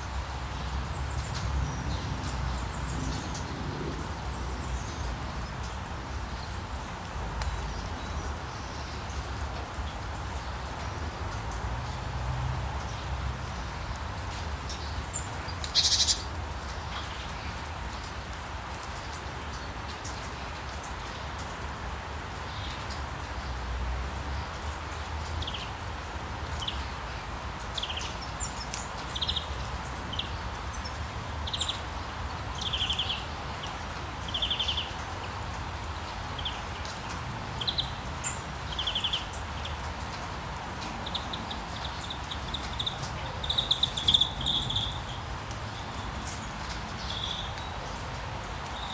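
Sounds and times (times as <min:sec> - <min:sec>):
bird chirping: 0:15.8 - 0:16.3, 0:41.0 - 0:47.8
rain hissing: 0:26.1 - 0:48.9.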